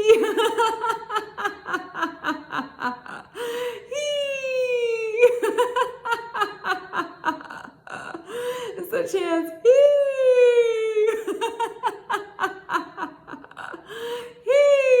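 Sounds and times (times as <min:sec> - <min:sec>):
woman laughing hee: 0:00.0 - 0:08.7
woman breathing: 0:03.0 - 0:04.0, 0:07.4 - 0:08.8, 0:13.1 - 0:14.5.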